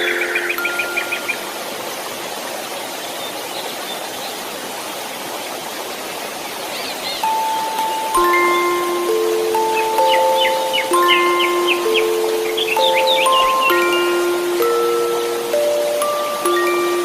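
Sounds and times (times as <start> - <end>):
soft lullaby notes: 0.0 - 1.6, 7.2 - 17.0
white noise hiss: 0.0 - 17.0
faint bird chirps: 6.7 - 17.0.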